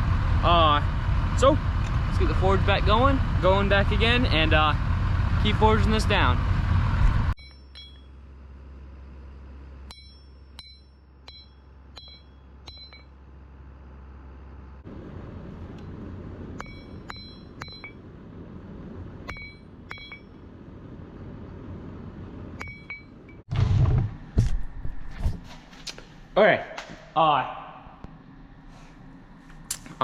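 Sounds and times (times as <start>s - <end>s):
low hum: 0.0s - 30.0s
hammer striking metal on anvil: 7.4s - 8.2s, 9.9s - 13.1s, 16.6s - 18.0s, 19.3s - 20.4s.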